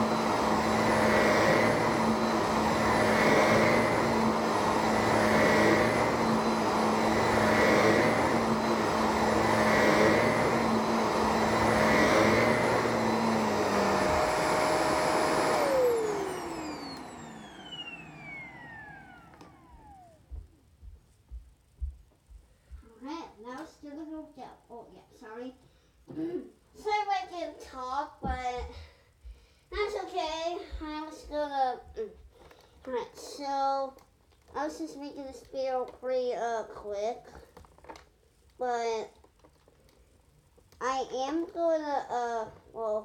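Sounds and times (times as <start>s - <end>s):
vacuum motor whine spinning down: 0.0s - 21.9s
vacuum cleaner running: 0.0s - 22.4s.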